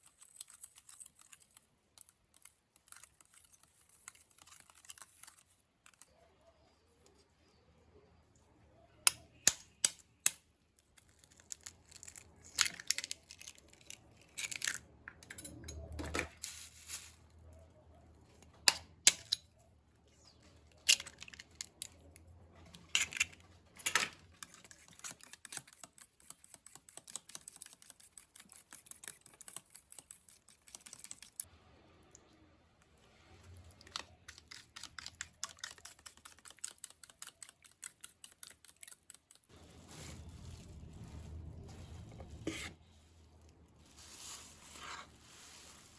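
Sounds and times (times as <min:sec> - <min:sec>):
rustling: 0:39.3 - 0:45.9.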